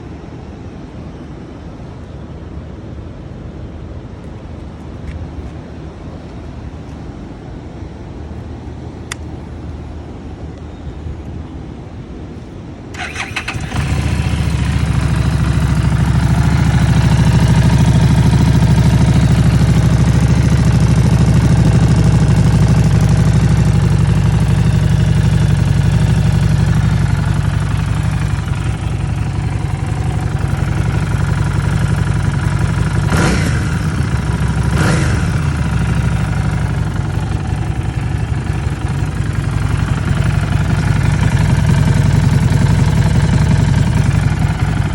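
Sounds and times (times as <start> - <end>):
motorcycle throttle blips: 9.0 - 9.4, 12.9 - 44.9
motorcycle engine idling: 12.9 - 44.9
engine starter cranking: 13.0 - 15.3.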